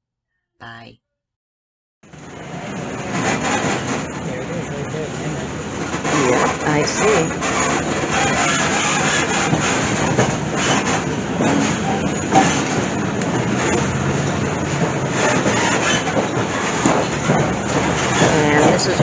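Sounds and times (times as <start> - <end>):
train wheels rumbling and clattering: 2.1 - 19.0.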